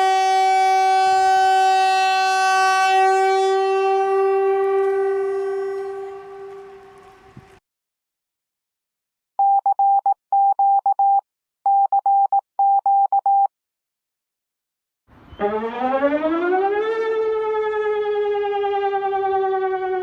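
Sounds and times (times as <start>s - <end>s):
warning siren wailing: 0.0s - 7.6s, 15.1s - 20.0s.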